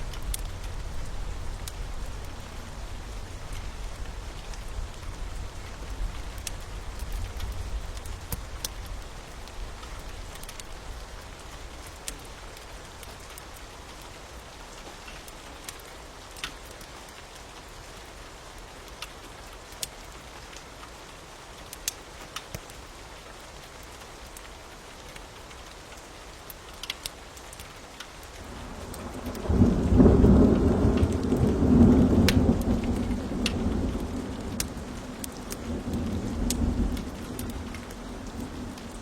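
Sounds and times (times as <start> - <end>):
wood fire crackling: 0.0 - 17.4, 21.6 - 22.9, 23.8 - 39.0
rain falling: 0.0 - 39.0.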